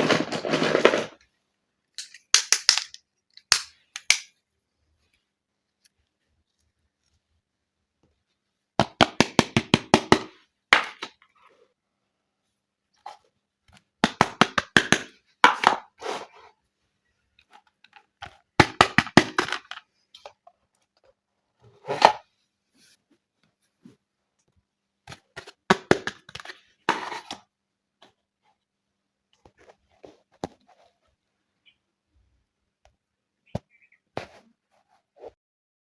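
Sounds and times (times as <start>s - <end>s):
plastic toy pieces clicking: 2.0s - 4.3s.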